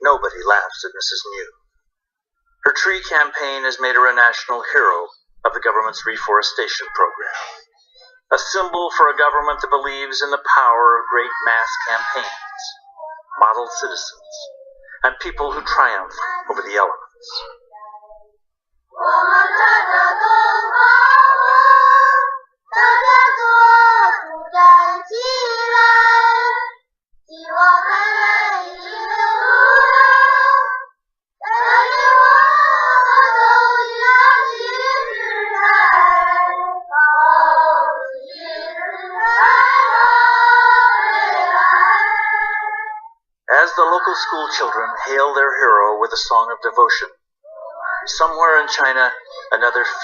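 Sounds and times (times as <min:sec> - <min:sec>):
children singing together: 0:10.6 - 0:18.2, 0:18.9 - 0:45.6, 0:47.5 - 0:48.2, 0:48.9 - 0:50.0.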